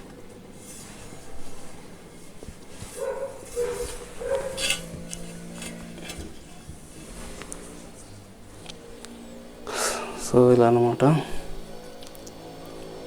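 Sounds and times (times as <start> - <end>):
dog barking: 3.0 - 4.8.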